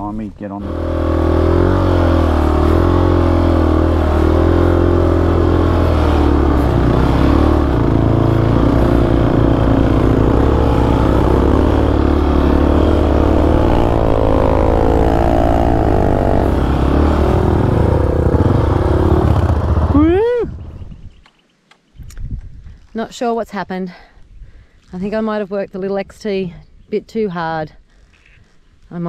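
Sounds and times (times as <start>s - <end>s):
dirt bike engine revving: 0.6s - 20.8s.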